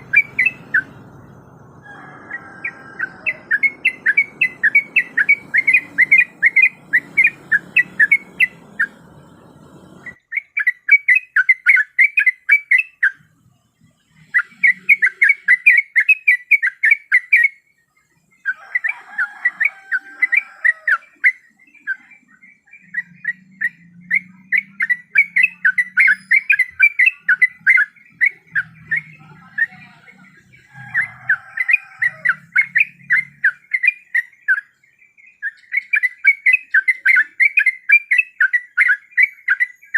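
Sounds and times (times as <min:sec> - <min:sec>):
bird calling bubbly notes: 0:00.0 - 0:13.1.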